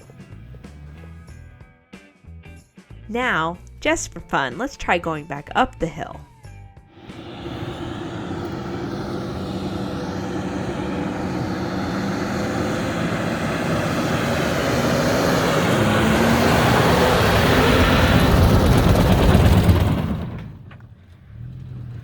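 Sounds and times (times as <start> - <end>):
broad rush of noise: 7.0 - 18.1
pickup engine working hard: 7.0 - 21.4.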